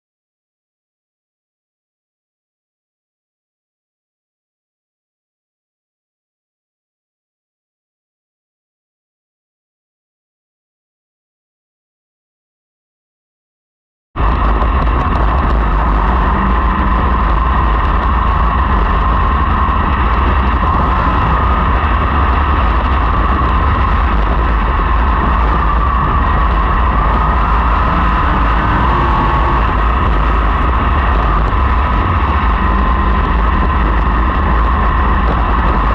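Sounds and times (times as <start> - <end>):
race car engines: 14.2 - 35.9.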